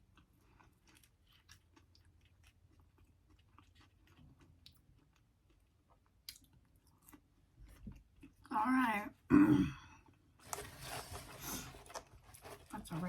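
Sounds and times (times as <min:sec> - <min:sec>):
chewing fried potato: 0:00.0 - 0:08.5.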